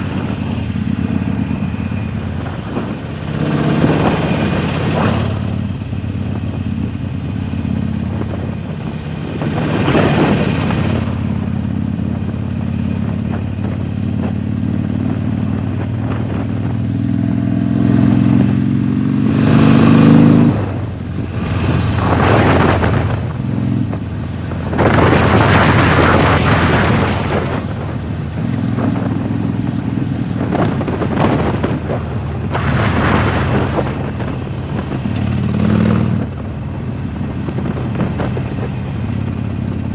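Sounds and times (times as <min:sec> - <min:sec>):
motorcycle engine accelerating: 0:00.0 - 0:39.9
rushing noise: 0:30.3 - 0:39.1.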